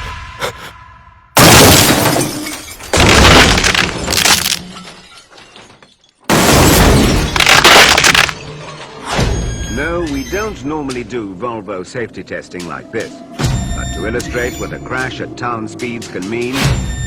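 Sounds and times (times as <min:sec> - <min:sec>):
glass breaking: 0:01.4 - 0:09.0
car crash impacts: 0:01.4 - 0:09.4.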